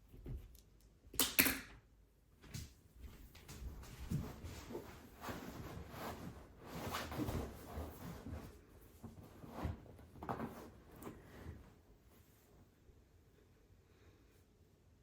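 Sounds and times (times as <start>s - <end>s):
soft rustling and handling: 2.4s - 12.9s.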